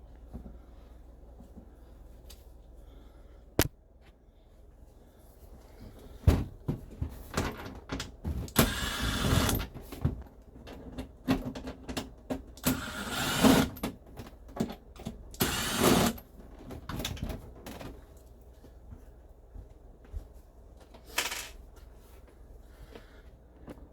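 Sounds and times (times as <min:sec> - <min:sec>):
cordless drill driving screws: 0:08.6 - 0:09.6, 0:12.6 - 0:13.8, 0:15.4 - 0:16.2.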